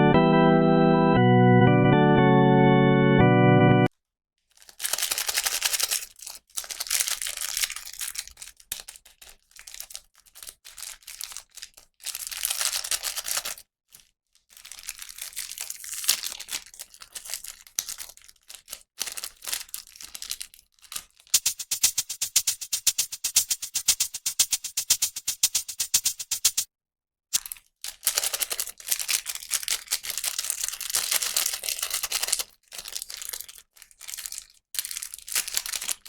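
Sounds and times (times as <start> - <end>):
plastic packaging crinkling and tearing: 4.5 - 26.2, 27.4 - 36.0
music with shaker rhythm: 21.3 - 26.7.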